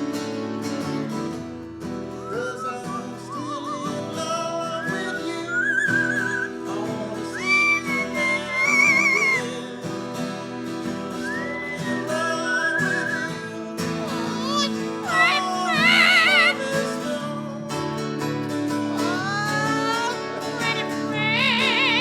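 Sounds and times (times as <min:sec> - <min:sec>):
acoustic guitar music: 0:00.0 - 0:22.0
pet bird whistling: 0:02.0 - 0:09.7, 0:11.0 - 0:16.8, 0:19.0 - 0:22.0.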